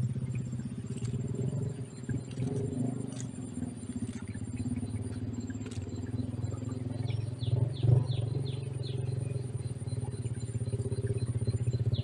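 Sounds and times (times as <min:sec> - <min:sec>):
low engine-like drone: 0:00.0 - 0:12.0
small bird chirps: 0:00.3 - 0:12.0.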